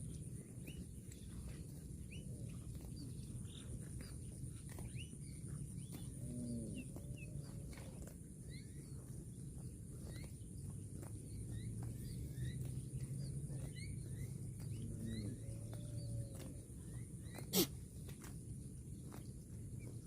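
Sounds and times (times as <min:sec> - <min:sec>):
cow mooing: 0:06.1 - 0:07.4, 0:14.8 - 0:16.2.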